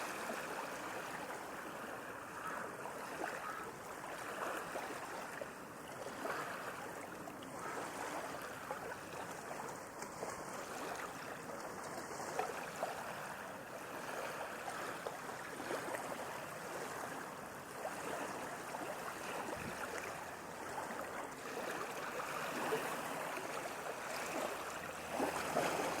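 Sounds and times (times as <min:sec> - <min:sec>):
ocean waves washing: 0:12.4 - 0:26.0.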